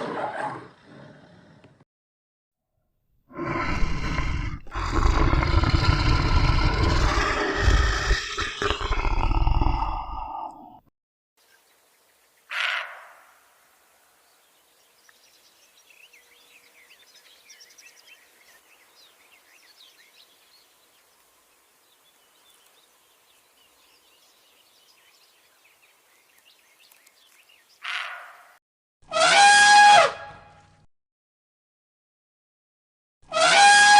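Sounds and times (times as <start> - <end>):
faint birds chirping: 3.4 - 10.7, 11.4 - 28.6
loud animal call: 3.4 - 10.7, 12.5 - 13.3, 27.8 - 28.5, 29.1 - 30.4, 33.2 - 33.9.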